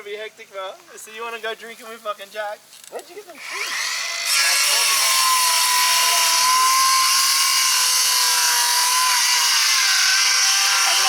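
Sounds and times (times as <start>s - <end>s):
power saw high whine: 3.4s - 11.0s.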